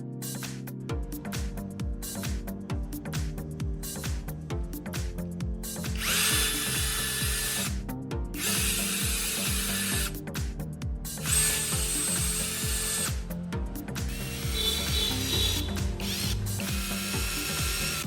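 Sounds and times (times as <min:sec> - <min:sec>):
electronic music with steady beat: 0:00.0 - 0:18.0
power drill whining: 0:05.9 - 0:07.8, 0:08.4 - 0:10.2, 0:11.2 - 0:13.3, 0:14.0 - 0:18.0.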